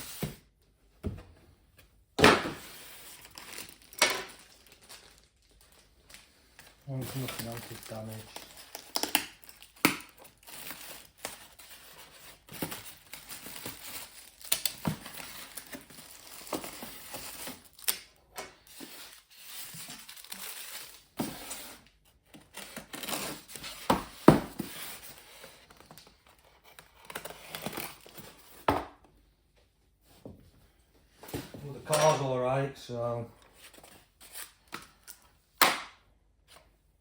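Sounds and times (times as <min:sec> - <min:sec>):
packaging crinkling and tearing: 0:03.0 - 0:18.1, 0:18.8 - 0:21.1.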